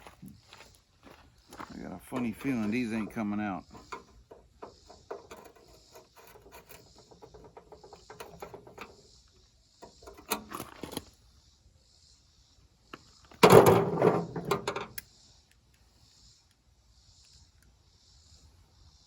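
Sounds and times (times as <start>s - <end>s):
metal hand tools clicking and scraping: 2.1s - 9.0s
loud metallic clatter: 13.4s - 14.8s.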